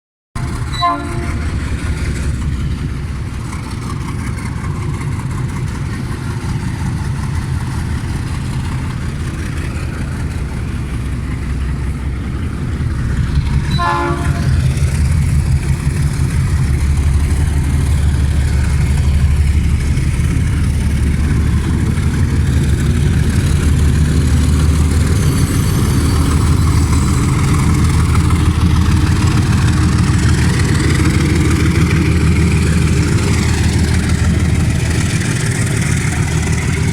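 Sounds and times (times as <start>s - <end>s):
train engine rumble: 0.4s - 36.9s
train horn toot: 0.7s - 1.6s, 13.7s - 14.6s.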